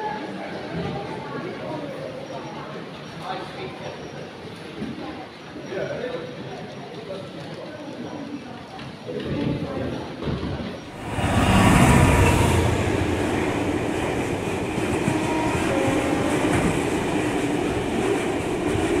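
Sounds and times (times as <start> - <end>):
train wheels rattling on track: 9.6 - 19.0.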